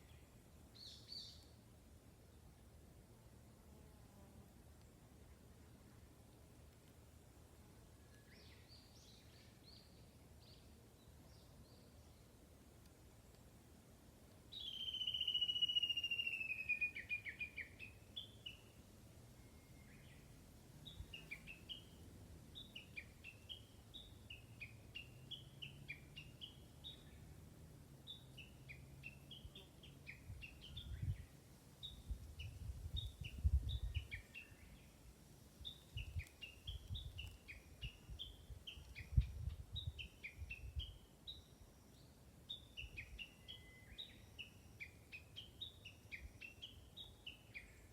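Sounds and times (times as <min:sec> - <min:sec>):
short high bird chirps: 0:14.6 - 0:17.8.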